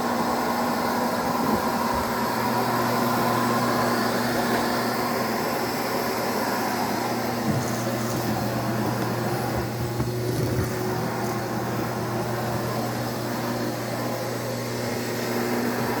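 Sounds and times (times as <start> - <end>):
motor humming: 6.3 - 16.0.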